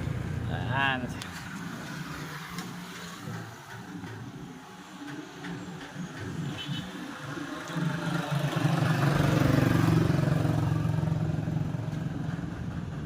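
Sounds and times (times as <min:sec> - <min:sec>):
motorcycle engine running: 0:07.9 - 0:13.0.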